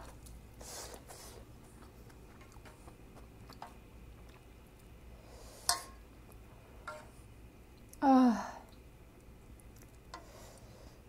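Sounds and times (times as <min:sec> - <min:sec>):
close-up chewing: 0:00.2 - 0:04.8.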